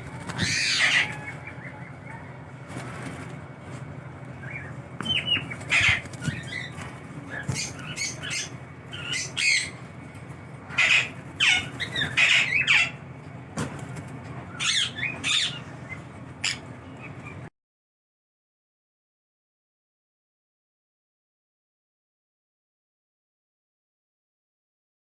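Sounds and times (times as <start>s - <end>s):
parrot squawking: 0.0s - 2.4s, 4.4s - 9.8s, 10.7s - 13.0s, 14.5s - 17.1s
faint steady hum: 0.0s - 17.5s.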